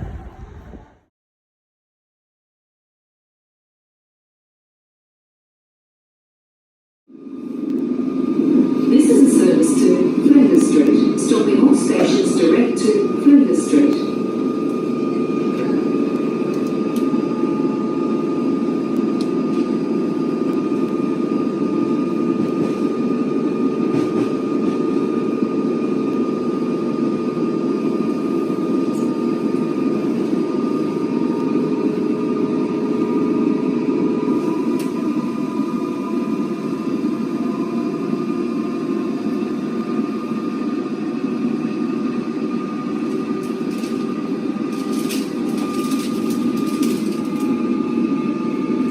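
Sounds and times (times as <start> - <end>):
electric train rumbling: 0.0 - 1.1, 7.1 - 48.9
high hum: 0.0 - 1.1.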